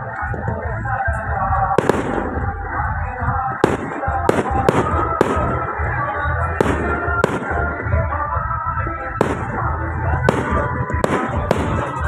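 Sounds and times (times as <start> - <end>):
background music: 0.0 - 12.0
firework bangs: 1.7 - 2.6, 3.6 - 5.9, 6.5 - 8.2, 9.2 - 12.0.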